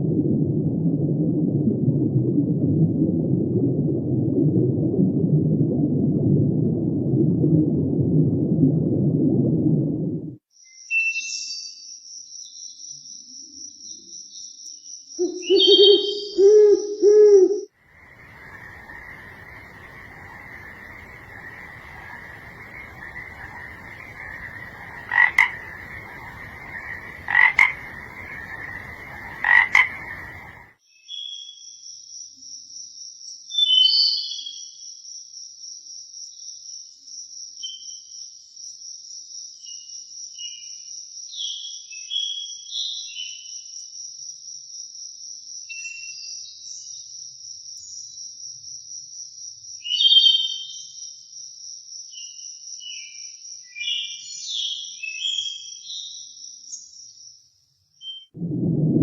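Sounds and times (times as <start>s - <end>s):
frogs croaking: 17.8s - 30.7s
high-pitched insect trill: 17.9s - 30.6s
short chirping calls: 18.0s - 31.3s.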